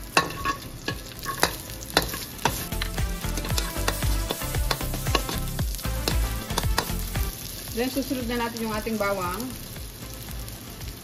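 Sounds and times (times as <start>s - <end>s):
food sizzling in hot oil: 0.0s - 11.0s
metal ladle scraping a wok: 0.1s - 2.6s.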